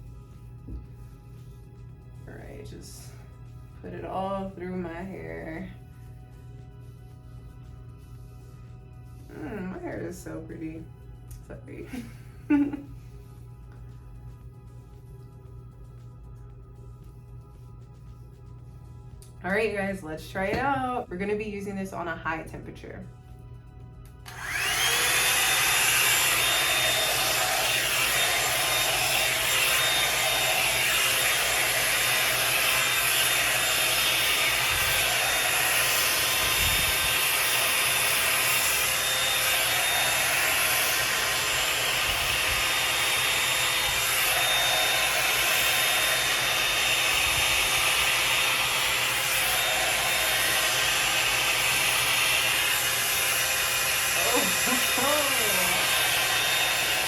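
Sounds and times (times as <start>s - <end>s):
hair dryer brush blowing: 24.2s - 57.0s.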